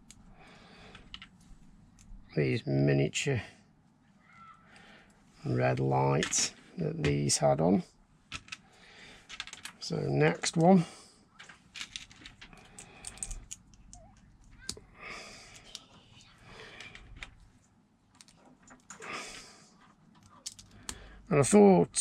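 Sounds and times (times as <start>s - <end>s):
plastic bricks clicking: 8.3s - 8.6s, 9.2s - 9.8s, 11.4s - 14.8s, 20.2s - 21.0s.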